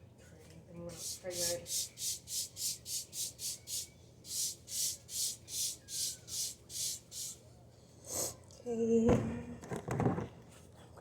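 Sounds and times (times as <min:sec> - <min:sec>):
scrubbing a surface: 0:00.9 - 0:07.4.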